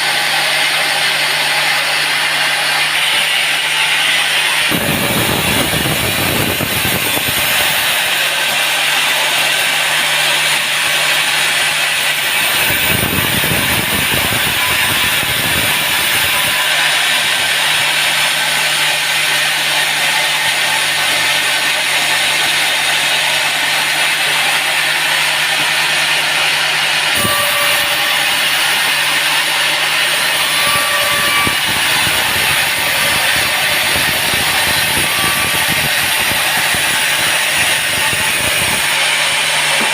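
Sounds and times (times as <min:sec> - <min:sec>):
saw cutting wood: 0:00.0 - 0:39.9
low motor hum: 0:01.1 - 0:08.7.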